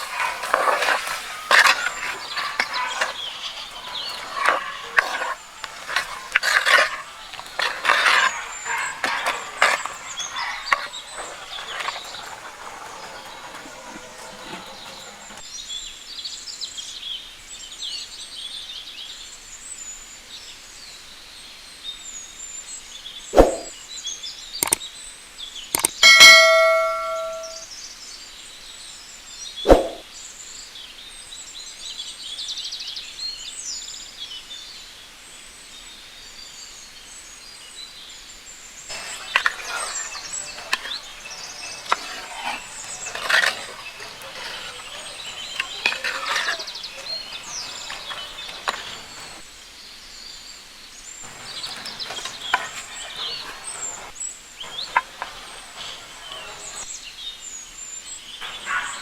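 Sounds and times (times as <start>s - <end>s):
birds chirping: 0.0s - 15.6s, 25.7s - 27.6s, 38.9s - 49.5s, 51.2s - 57.2s, 58.2s - 59.0s
metallic clang: 26.0s - 27.6s.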